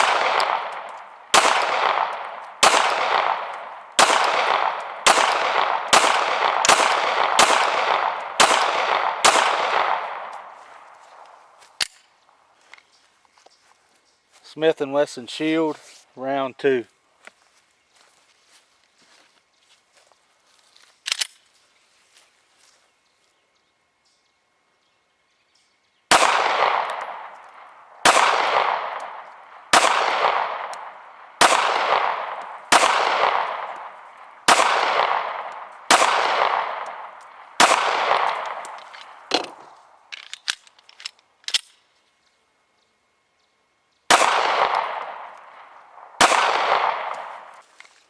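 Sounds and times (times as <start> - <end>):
pistol shots echoing: 0.0 - 10.6, 26.1 - 39.7, 44.1 - 47.6.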